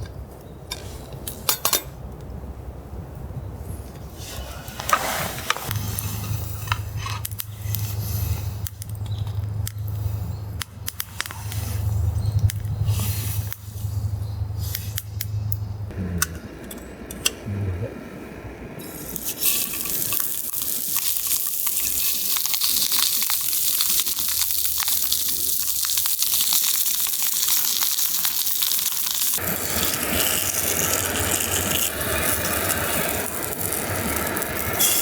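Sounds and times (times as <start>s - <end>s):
steady low hum: 5.7s - 20.2s.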